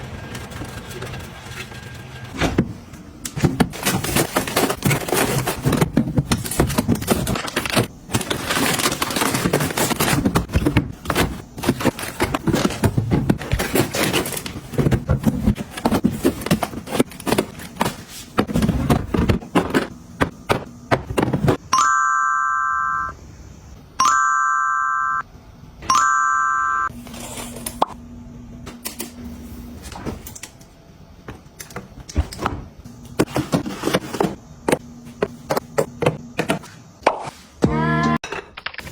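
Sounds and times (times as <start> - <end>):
household items clicking and rustling: 3.3 - 21.6
electronic appliance beeps: 21.7 - 23.2, 24.0 - 26.9.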